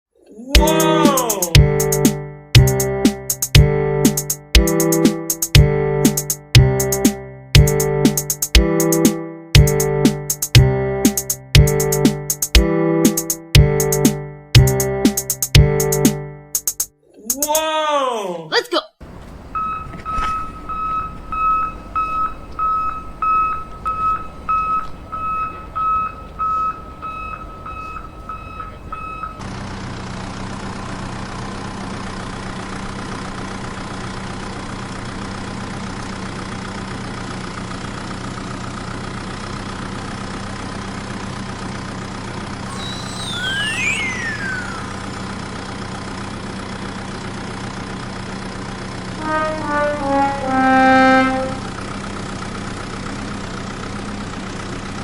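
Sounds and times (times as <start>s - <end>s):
sliding whistle tones: 42.7s - 45.4s
toy engine hum: 42.7s - 45.4s
toy reversing beep: 42.7s - 45.4s.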